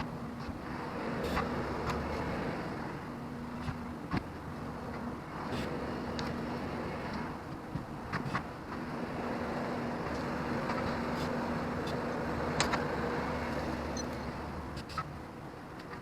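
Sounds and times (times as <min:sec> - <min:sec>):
diesel engine running: 0:00.0 - 0:15.6.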